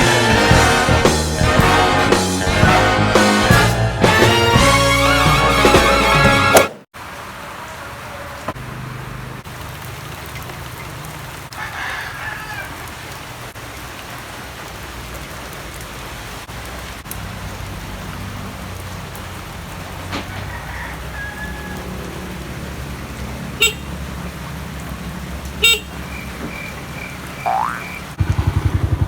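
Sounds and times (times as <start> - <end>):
rain and wind hiss: 7.0 - 27.4, 28.0 - 29.0
motorcycle engine drone: 27.4 - 29.0.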